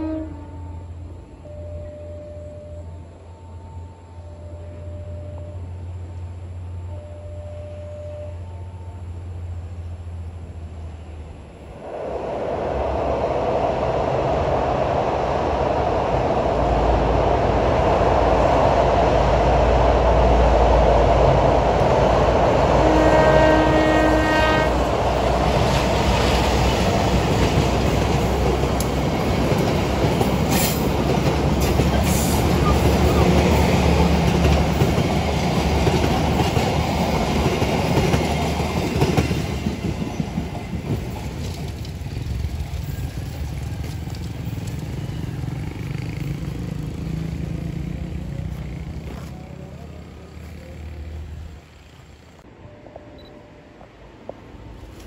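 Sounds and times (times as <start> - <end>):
train horn blast: 0.0 - 2.8, 22.7 - 25.0
diesel locomotive engine rumble: 0.0 - 55.0
train wheels clattering over rails: 24.9 - 46.9.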